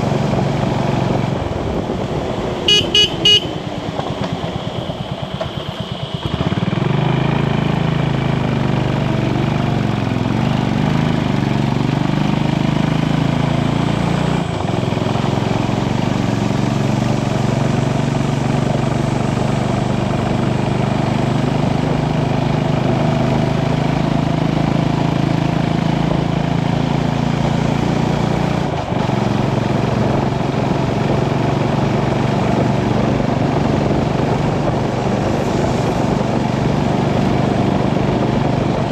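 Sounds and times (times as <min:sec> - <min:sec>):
constant rushing noise: 0:00.0 - 0:12.1, 0:27.3 - 0:38.9
motorcycle engine running: 0:00.0 - 0:38.9.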